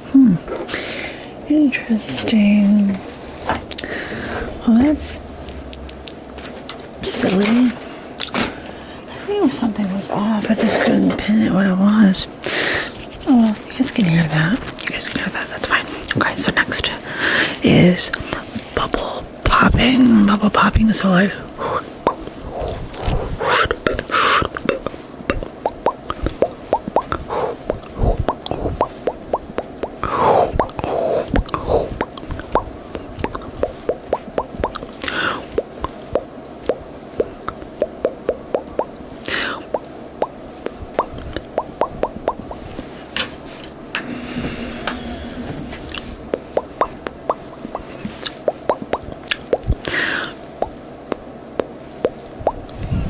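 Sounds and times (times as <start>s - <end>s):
breathy hisses: 3.8s - 4.6s, 21.6s - 24.6s, 27.2s - 28.8s, 39.2s - 39.7s, 44.0s - 46.0s, 49.8s - 50.4s
wet mouth pops: 22.0s - 38.9s, 39.6s - 42.6s, 46.3s - 49.9s, 50.6s - 52.7s.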